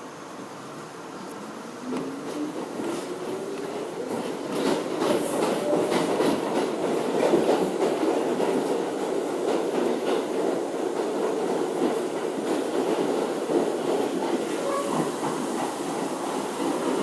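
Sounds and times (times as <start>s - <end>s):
subway train rumble: 0.0s - 17.0s
train wheels clacking over rail joints: 1.9s - 17.0s.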